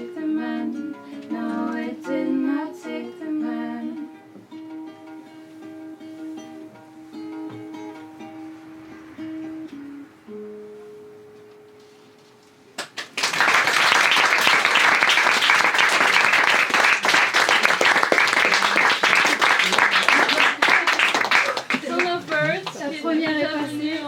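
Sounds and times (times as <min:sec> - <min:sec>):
plucked acoustic string notes: 0:00.0 - 0:12.7
audience applause: 0:12.8 - 0:22.9.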